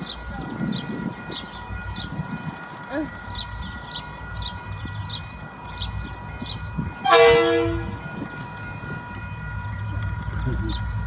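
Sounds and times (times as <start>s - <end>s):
short horn blast: 7.1s - 8.0s.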